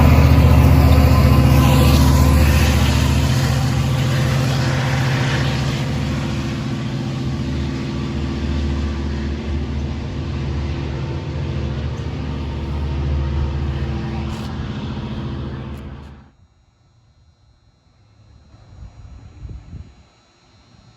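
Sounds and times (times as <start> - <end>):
diesel locomotive engine hum: 0.0 - 16.4.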